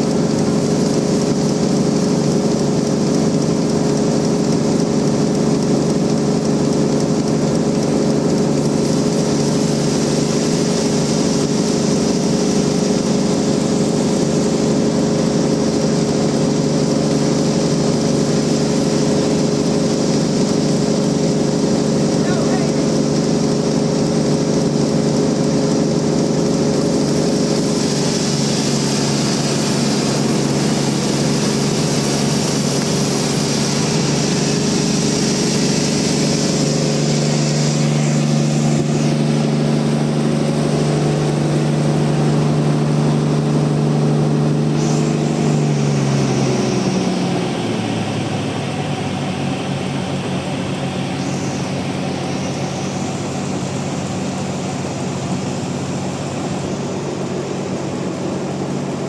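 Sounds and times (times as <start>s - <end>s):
sawmill motor hum: 0.0s - 59.0s
band saw cutting hiss: 26.2s - 41.4s, 44.2s - 48.4s.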